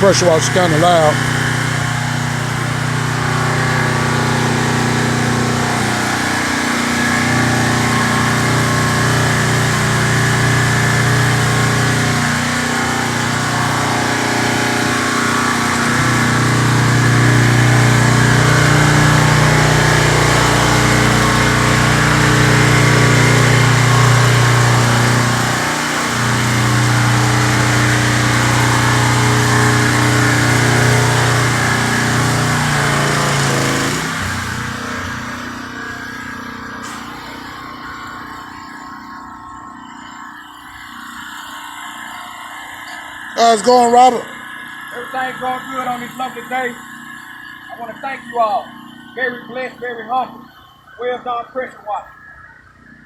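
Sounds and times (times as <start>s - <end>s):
pressure washer running: 0.0s - 53.0s.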